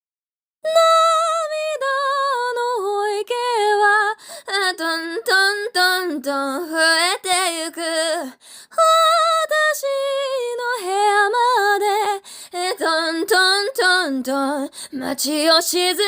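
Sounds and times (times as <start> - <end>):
woman singing unaccompanied: 0.6 - 16.0
singer breathing: 4.2 - 4.5, 8.4 - 8.8, 12.2 - 12.6, 14.7 - 15.0.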